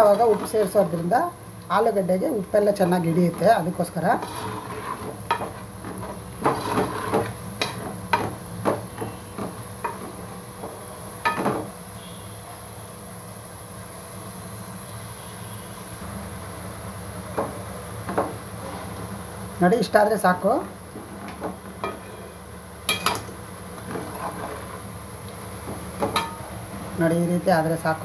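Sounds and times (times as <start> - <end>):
potatoes sizzling in oil: 0.0 - 28.0
spoon knocking and scraping pot: 4.2 - 11.7, 25.6 - 26.4.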